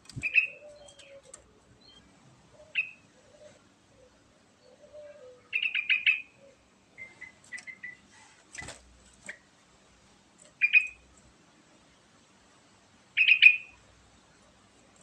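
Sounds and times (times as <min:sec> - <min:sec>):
bird chirping: 0:00.0 - 0:08.7, 0:10.5 - 0:11.1, 0:13.2 - 0:13.8.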